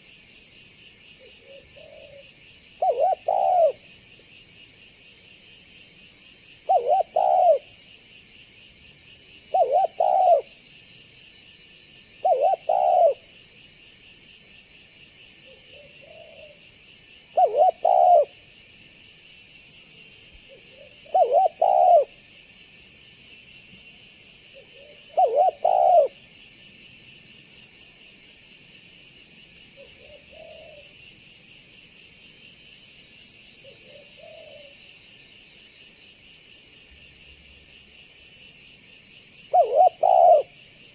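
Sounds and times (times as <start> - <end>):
high insect chorus: 0.0 - 40.9
dove cooing: 1.4 - 2.2, 2.8 - 3.8, 6.7 - 7.7, 9.5 - 10.5, 12.2 - 13.2, 15.7 - 16.6, 17.4 - 18.3, 20.5 - 22.2, 24.6 - 26.2, 30.0 - 30.8, 33.6 - 34.7, 39.5 - 40.5.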